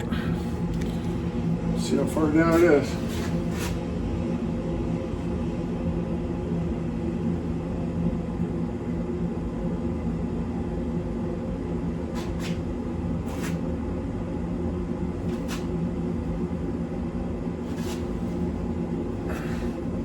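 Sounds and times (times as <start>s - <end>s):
low mechanical hum: 0.0s - 20.0s
faint scraping: 17.7s - 18.4s.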